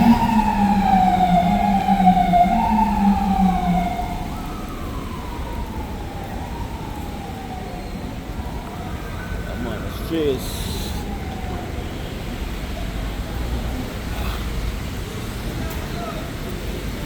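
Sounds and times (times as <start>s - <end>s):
low steady tone: 0.0s - 5.1s
emergency vehicle siren wailing: 0.0s - 12.9s.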